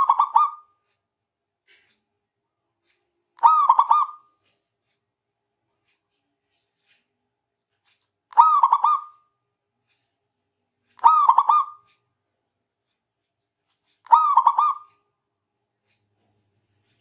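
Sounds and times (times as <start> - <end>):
dove cooing: 3.4 - 4.2, 11.0 - 11.8, 14.1 - 14.8.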